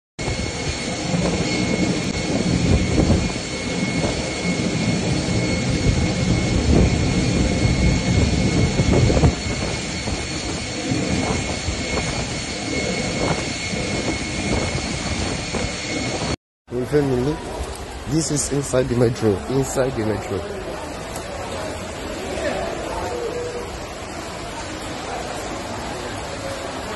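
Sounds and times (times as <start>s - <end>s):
thunder rumbling: 0.2s - 16.4s
thunderstorm rushing roar: 0.2s - 18.6s.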